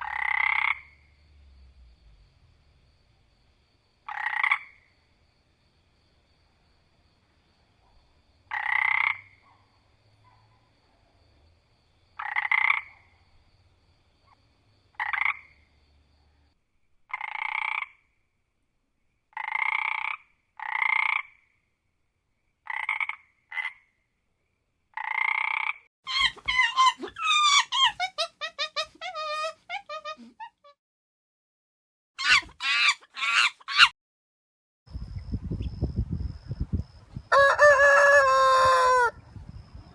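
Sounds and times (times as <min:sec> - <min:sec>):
animal calling: 0:26.1 - 0:30.8, 0:32.2 - 0:33.9.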